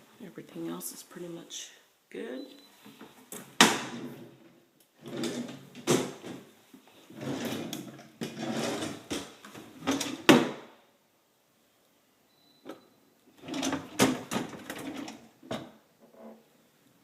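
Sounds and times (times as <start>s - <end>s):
drawers sliding and knocking shut: 3.4s - 4.4s, 5.0s - 6.5s, 7.1s - 10.7s, 13.4s - 15.8s.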